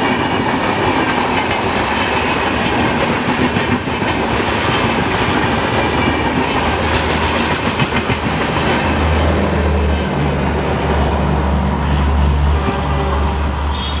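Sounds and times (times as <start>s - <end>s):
train wheels clattering: 0.0s - 10.4s
train rumble: 0.0s - 14.0s.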